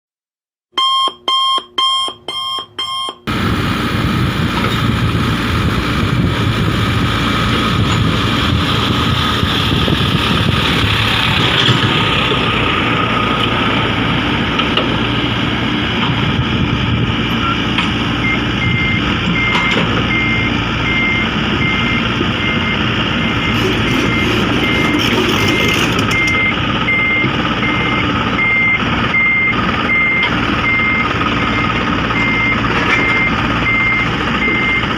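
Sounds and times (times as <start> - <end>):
reversing alarm beeping: 0.7 - 3.3, 17.3 - 34.9
heavy diesel machinery running: 0.9 - 34.9.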